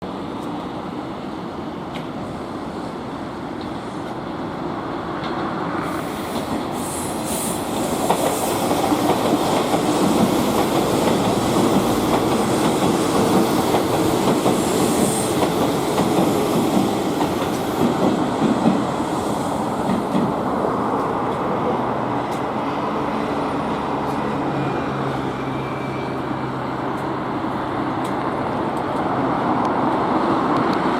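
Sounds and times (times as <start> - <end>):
electric train passing: 0.1 - 30.9
high squeal: 24.5 - 26.6.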